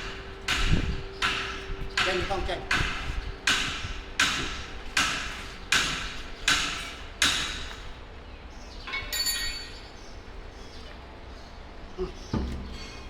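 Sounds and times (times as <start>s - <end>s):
hammer striking metal: 0.0s - 7.8s
short high metallic ring: 9.0s - 10.0s.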